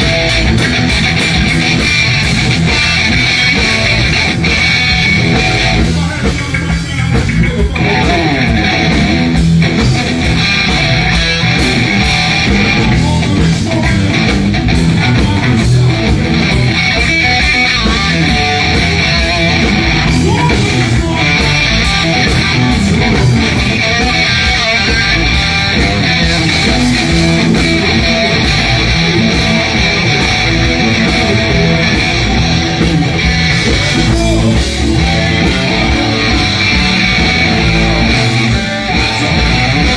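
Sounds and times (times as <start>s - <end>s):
electric guitar: 0.0s - 39.9s
live rock band playing: 0.0s - 39.9s.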